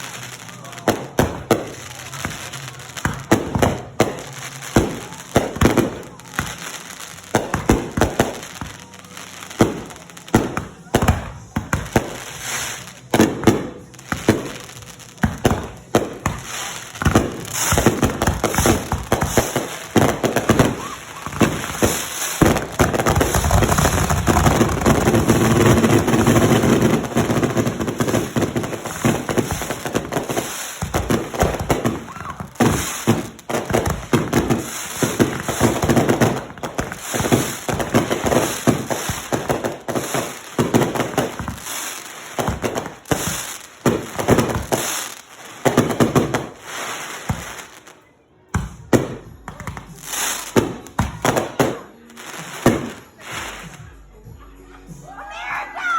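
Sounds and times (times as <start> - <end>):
fireworks popping and crackling: 0.0 - 54.0.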